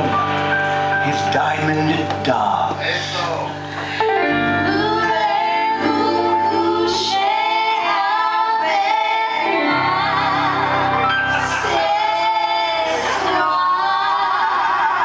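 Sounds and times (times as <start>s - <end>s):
band accompaniment: 0.0s - 8.4s, 9.0s - 14.2s
woman singing with vibrato: 4.4s - 10.9s.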